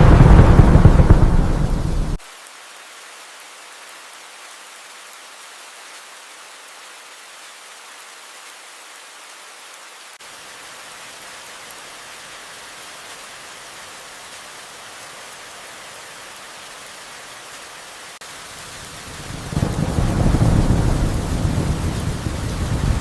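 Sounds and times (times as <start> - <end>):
low rumble of thunder: 0.0 - 2.2, 19.1 - 23.0
steady rain falling: 0.0 - 23.0.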